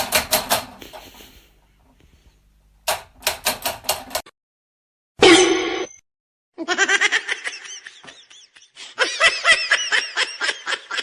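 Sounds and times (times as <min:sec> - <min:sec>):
person laughing hard: 0:06.6 - 0:11.0.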